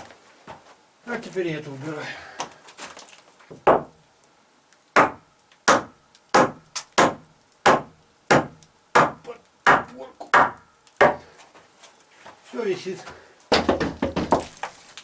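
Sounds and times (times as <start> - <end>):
sharp blows on wood: 5.0 - 11.3.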